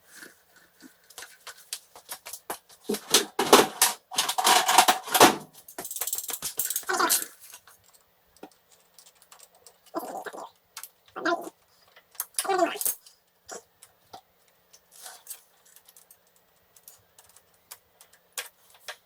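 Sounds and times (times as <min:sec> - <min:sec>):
clicks and clattering knocks: 0:01.1 - 0:06.9.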